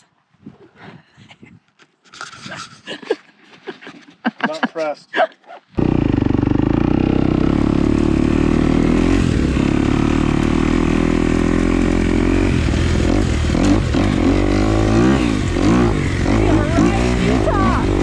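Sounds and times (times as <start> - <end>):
dirt bike engine revving: 5.8 - 18.0.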